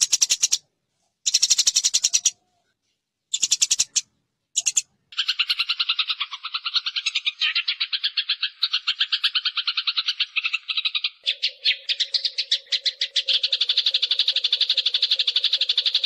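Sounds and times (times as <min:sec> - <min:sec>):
sparrows chirping sharply: 0:00.0 - 0:00.6, 0:01.2 - 0:02.4, 0:03.3 - 0:16.0.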